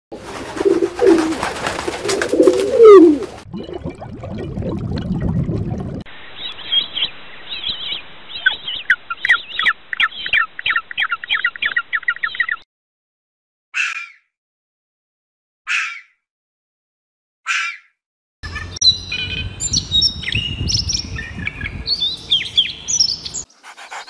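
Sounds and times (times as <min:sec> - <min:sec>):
pigeons cooing: 0:00.2 - 0:03.4
wings flapping: 0:00.2 - 0:03.4.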